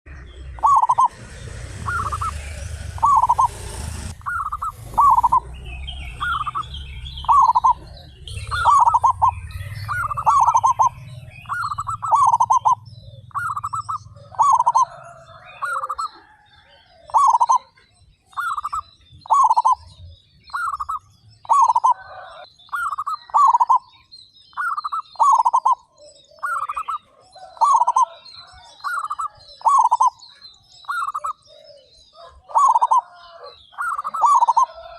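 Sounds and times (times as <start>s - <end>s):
low rumble: 0.1s - 15.3s
small birds chirping: 0.1s - 34.9s
doves cooing: 0.2s - 23.9s, 24.5s - 34.9s.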